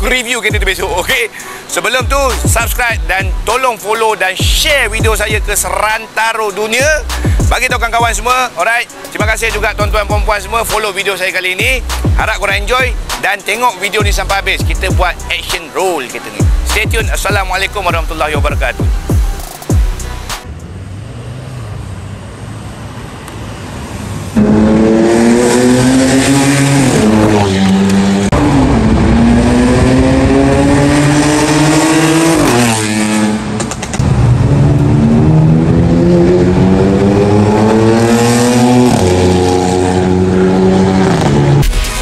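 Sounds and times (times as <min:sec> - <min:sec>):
car engine accelerating: 0:19.8 - 0:42.0.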